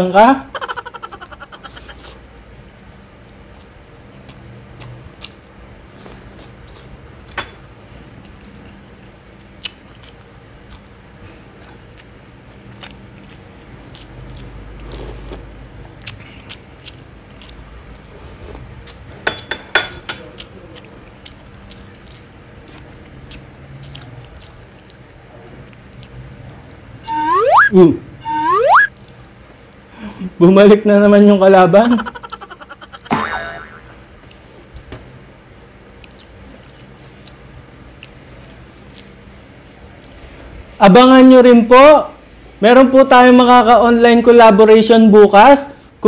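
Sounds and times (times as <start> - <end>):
person chewing food: 3.2 - 7.0, 9.4 - 10.9, 11.6 - 19.0, 20.4 - 27.4, 36.0 - 39.2.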